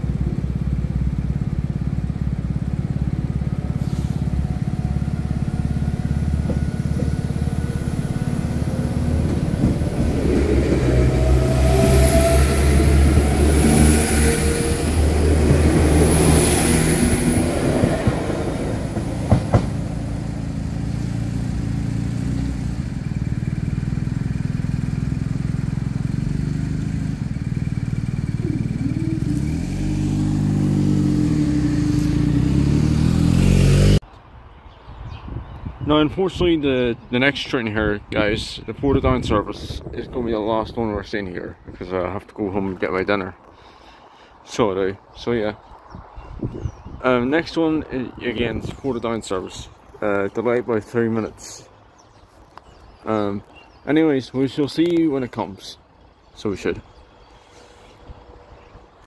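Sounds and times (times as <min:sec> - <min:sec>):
diesel train engine and wheels: 0:00.0 - 0:34.4.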